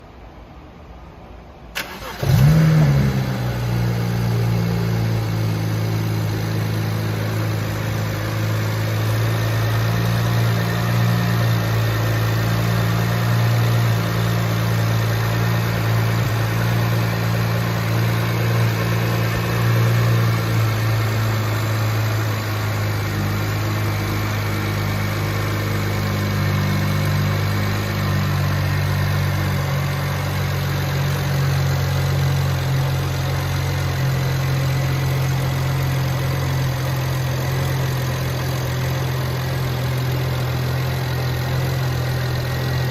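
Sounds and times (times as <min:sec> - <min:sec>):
car starter turning: 0:01.8 - 0:03.7
car engine revving and idling: 0:01.8 - 0:42.9.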